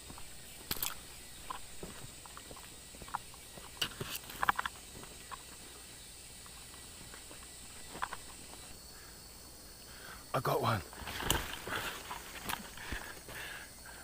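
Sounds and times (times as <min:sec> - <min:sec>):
twigs and leaves snapping: 0:00.0 - 0:05.8, 0:06.4 - 0:08.8, 0:10.9 - 0:13.3
faint forest hiss: 0:00.0 - 0:14.0.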